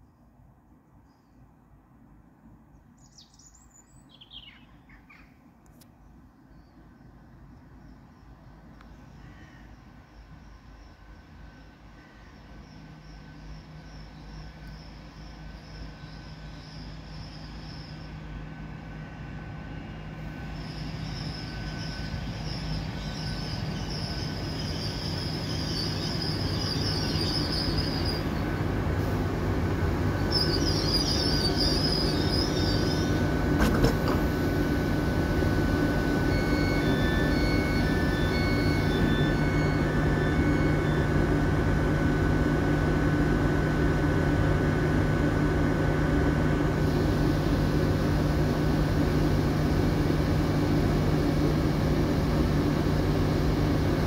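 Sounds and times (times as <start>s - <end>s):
steady train hum: 0.0s - 54.0s
train rumble: 5.4s - 54.0s
wheel or brake squeal: 20.4s - 28.3s, 30.3s - 33.2s, 36.2s - 41.2s
short high beeps: 36.2s - 41.1s.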